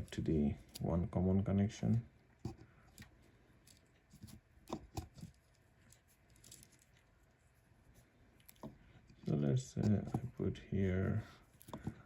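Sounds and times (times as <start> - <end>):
faint taps and clicks of wires: 8.4 - 10.4, 11.6 - 12.0.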